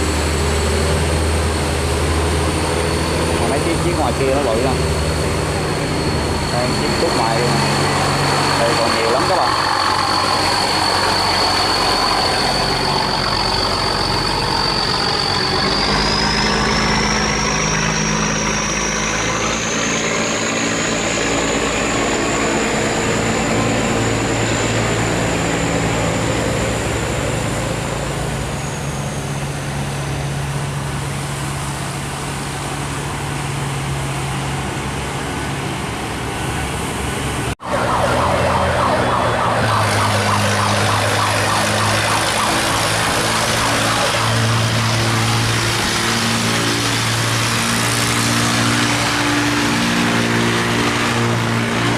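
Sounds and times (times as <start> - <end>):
boat engines running: 0.0 - 51.9
high engine whine: 0.0 - 51.9.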